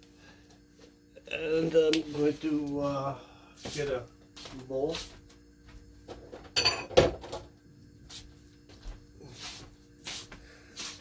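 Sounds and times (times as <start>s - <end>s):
clinking crockery: 6.5s - 7.4s.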